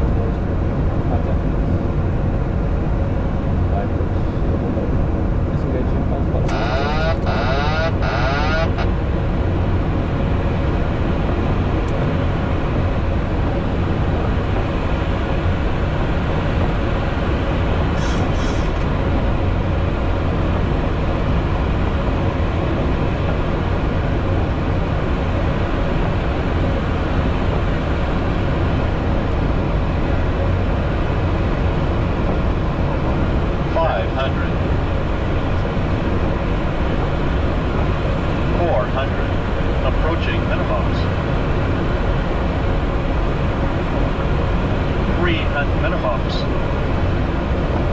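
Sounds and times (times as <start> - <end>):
aircraft engines idling: 0.0 - 47.9.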